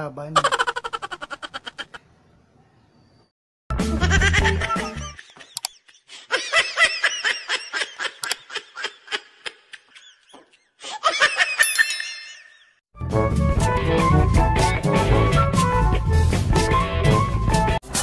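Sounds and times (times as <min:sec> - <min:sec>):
high-pitched laughter: 0:00.4 - 0:02.0, 0:03.9 - 0:12.8
high ringing ding: 0:11.6 - 0:12.6.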